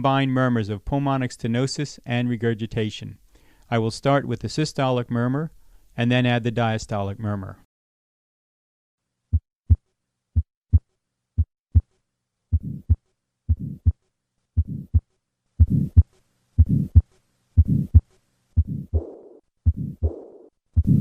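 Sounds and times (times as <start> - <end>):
heartbeat sounds: 9.3 - 9.8, 10.4 - 10.8, 12.5 - 14.0, 14.6 - 21.0
heart murmur: 12.5 - 14.0, 14.6 - 15.0, 15.6 - 18.0, 18.6 - 21.0.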